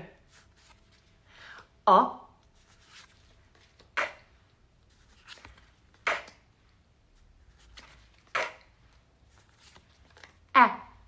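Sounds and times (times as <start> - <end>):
person saying k sound: 10.5 - 11.0.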